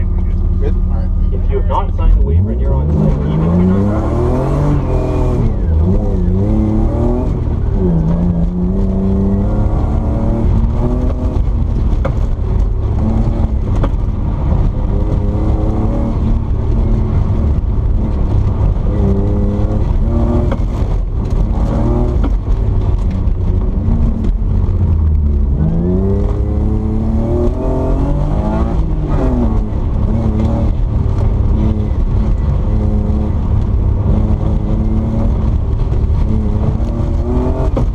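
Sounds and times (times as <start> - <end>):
car engine revving: 0.0 - 37.9
heavy low rumble: 0.0 - 37.9.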